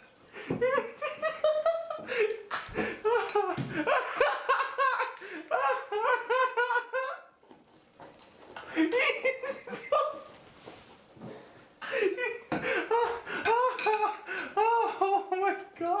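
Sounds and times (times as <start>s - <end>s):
person laughing hard: 0.5s - 7.4s, 8.7s - 10.3s, 11.8s - 15.6s.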